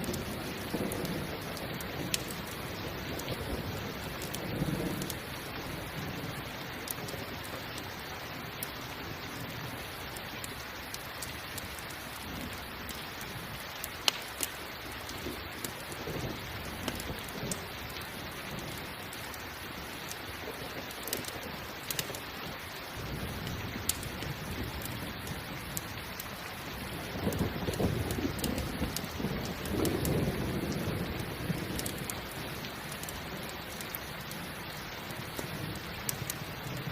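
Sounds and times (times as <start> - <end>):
campfire crackling: 0.0 - 36.9
steady rain: 0.0 - 36.9.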